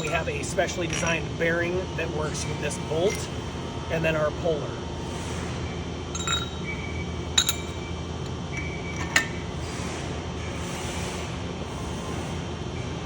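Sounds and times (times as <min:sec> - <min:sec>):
steel parts clinking: 0:00.0 - 0:01.3, 0:06.1 - 0:06.8, 0:07.4 - 0:07.8
steady low hum: 0:00.0 - 0:13.0.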